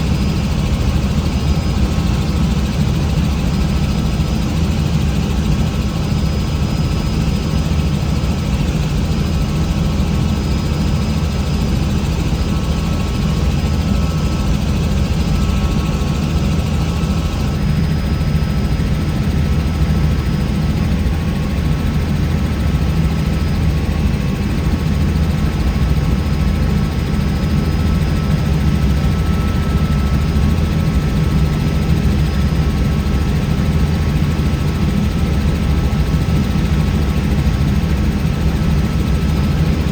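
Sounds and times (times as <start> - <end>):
helicopter rotor drone: 0.0 - 39.9
faint whining tones: 26.3 - 33.8.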